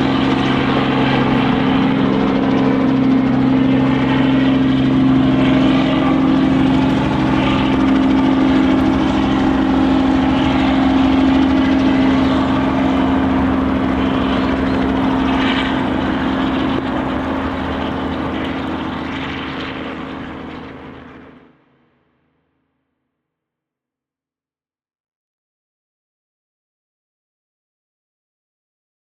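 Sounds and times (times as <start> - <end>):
vehicle engine drone: 0.0 - 21.6.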